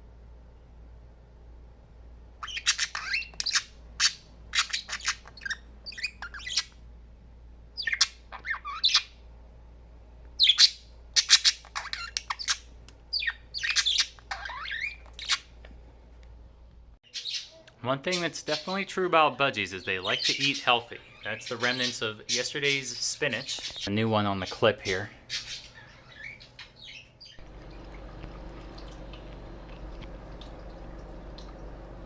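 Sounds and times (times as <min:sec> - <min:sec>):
budgies chirping and squawking: 0:02.4 - 0:06.7, 0:07.8 - 0:09.2, 0:10.4 - 0:15.4, 0:19.7 - 0:27.9.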